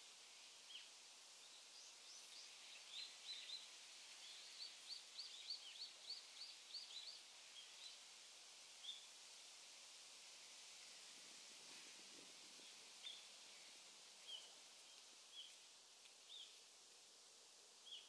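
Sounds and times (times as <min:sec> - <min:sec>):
faint steady hiss: 0:00.0 - 0:18.0
songbird high chirps: 0:00.7 - 0:08.0, 0:14.2 - 0:15.6, 0:16.3 - 0:16.6.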